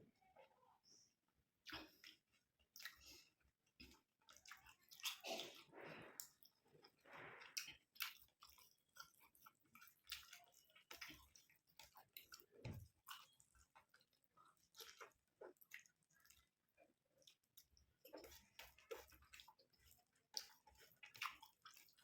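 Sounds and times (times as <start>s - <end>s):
wet chewing mouth clicks: 1.6s - 16.5s, 17.2s - 22.0s.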